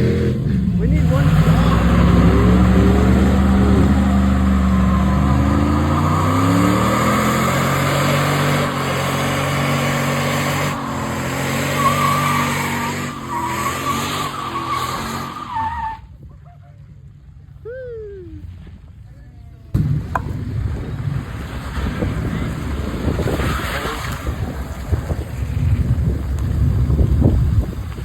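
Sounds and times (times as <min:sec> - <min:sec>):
truck engine revving: 0:00.0 - 0:15.9, 0:19.8 - 0:27.6
tires squealing: 0:00.8 - 0:16.1.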